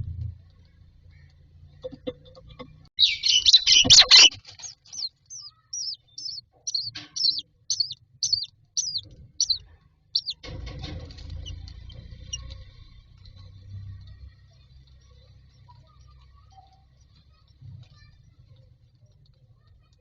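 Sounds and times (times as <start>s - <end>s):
chicks shrill begging calls: 3.0s - 9.6s, 10.2s - 10.4s.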